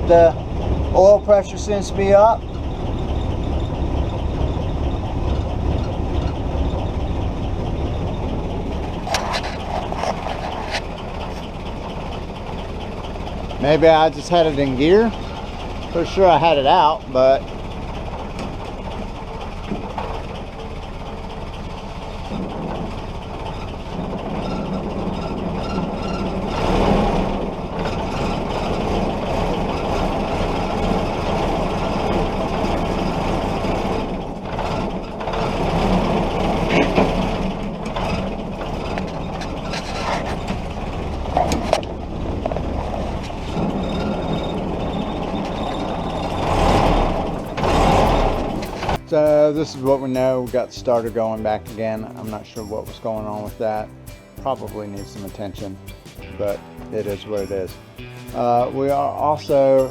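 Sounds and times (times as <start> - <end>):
jeep engine running: 0.0 - 59.9.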